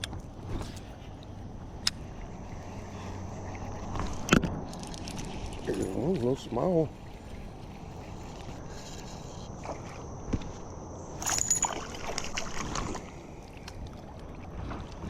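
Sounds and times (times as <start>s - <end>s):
creek water rushing: 0.9s - 10.2s.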